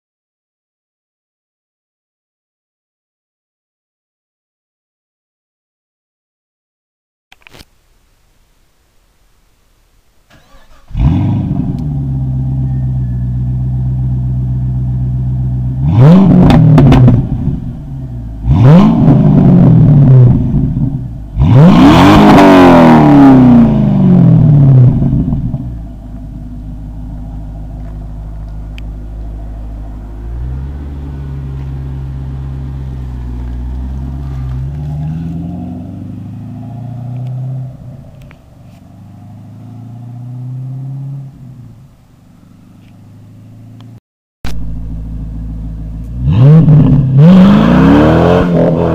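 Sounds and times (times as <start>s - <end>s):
car engine idling: 8.0s - 21.7s, 23.6s - 40.2s, 41.2s - 47.3s
car engine starting: 10.2s - 48.9s
car engine revving: 10.3s - 48.9s.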